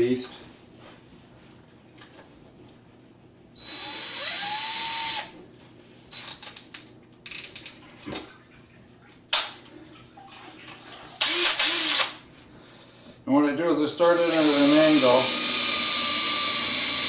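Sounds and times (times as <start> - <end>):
power drill whining: 3.6 - 5.3, 11.2 - 12.2, 14.0 - 17.0.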